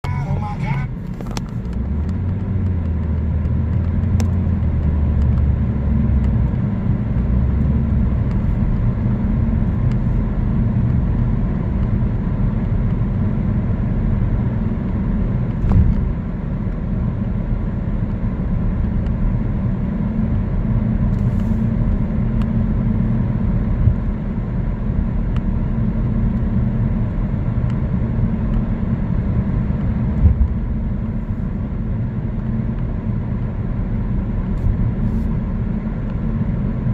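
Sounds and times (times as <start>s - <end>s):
car tyres and engine rumble: 0.0s - 36.9s.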